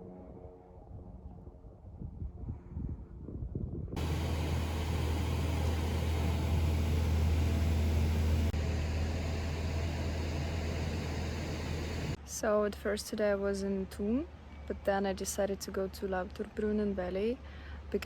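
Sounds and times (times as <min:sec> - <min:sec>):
moving vehicle interior rumble: 0:04.0 - 0:12.2.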